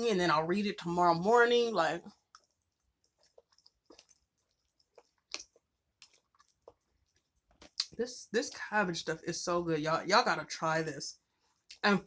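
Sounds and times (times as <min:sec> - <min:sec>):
person chewing food: 0:02.1 - 0:08.0.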